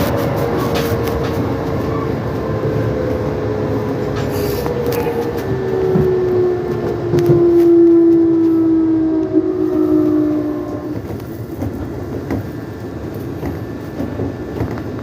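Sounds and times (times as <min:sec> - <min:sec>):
electric train motor whine: 0:00.0 - 0:13.2
wheel and track rumble: 0:00.0 - 0:15.0.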